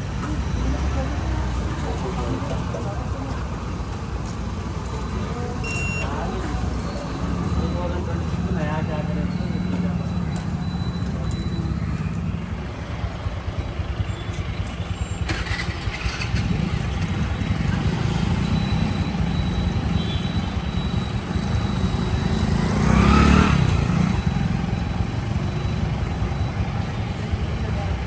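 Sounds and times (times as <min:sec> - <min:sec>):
motorbike engine running: 0:06.6 - 0:28.0
vehicle passing close by: 0:21.3 - 0:24.2.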